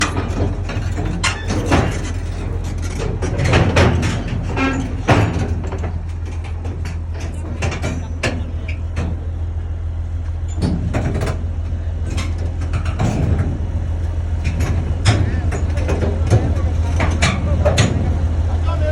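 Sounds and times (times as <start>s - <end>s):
sharp knocks and clanks: 0.0s - 9.3s, 10.5s - 18.2s
diesel engine running: 0.0s - 18.9s.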